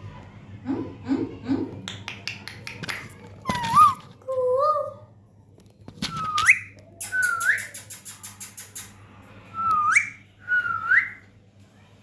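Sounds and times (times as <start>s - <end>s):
parrot whistling: 6.2s - 8.0s, 9.6s - 11.2s
parrot clicks: 6.4s - 9.0s.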